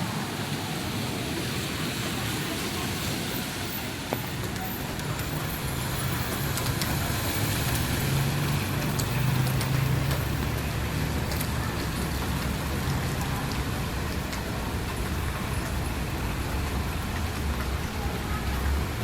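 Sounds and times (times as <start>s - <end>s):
heavy rain pouring: 0.0s - 19.0s
raindrops ticking on umbrella: 3.0s - 19.0s
vehicle engine humming: 4.1s - 19.0s.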